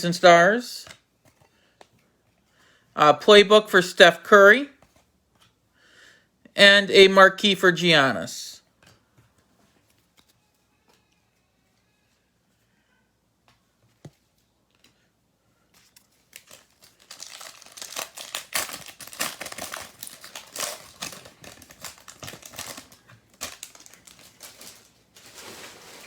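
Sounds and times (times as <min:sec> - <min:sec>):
plastic wrapper tearing and crinkling: 0:15.8 - 0:26.0.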